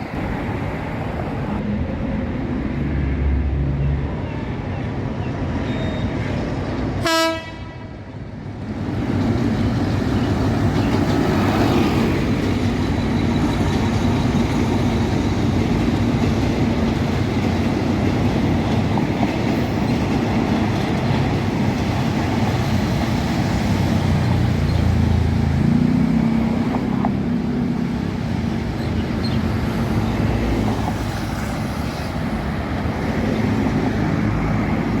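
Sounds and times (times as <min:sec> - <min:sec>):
train rumbling: 0:00.0 - 0:35.0
locomotive horn blast: 0:07.0 - 0:07.9.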